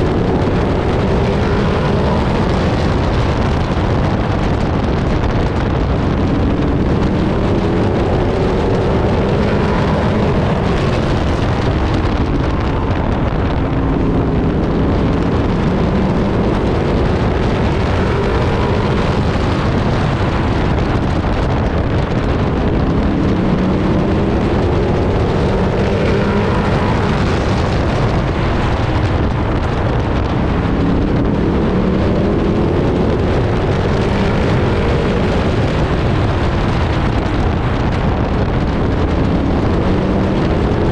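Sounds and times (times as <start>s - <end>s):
race truck engine revving: 0.0s - 40.9s
wind and road noise: 0.0s - 40.9s.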